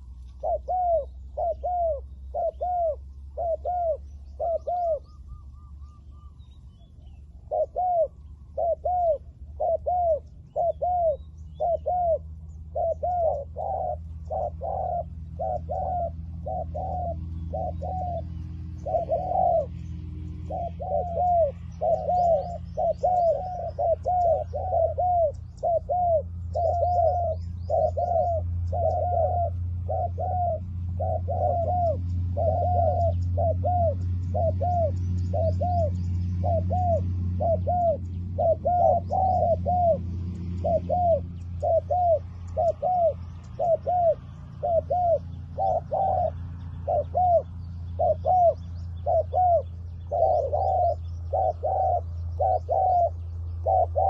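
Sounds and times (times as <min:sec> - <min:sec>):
doves cooing: 0:00.0 - 0:54.0
low steady hum: 0:00.0 - 0:54.0
small birds chirping: 0:00.0 - 0:54.0.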